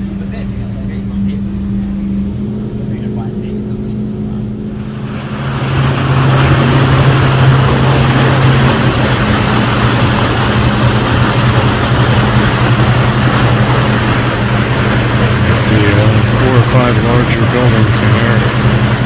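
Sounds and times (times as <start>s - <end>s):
boat engine droning: 0.0s - 19.0s
water rushing: 0.0s - 19.0s
rushing wind: 3.9s - 19.0s.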